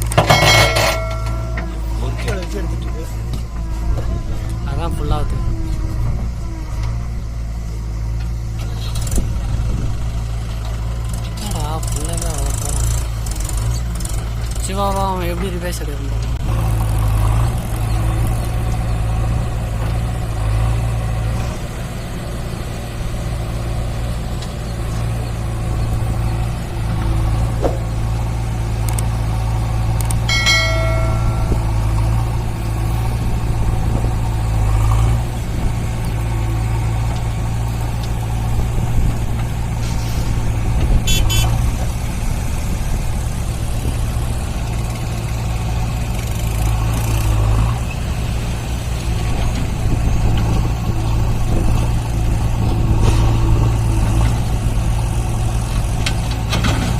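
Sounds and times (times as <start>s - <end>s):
diesel engine droning: 0.0s - 56.9s
brief horn-like tone: 41.0s - 41.6s.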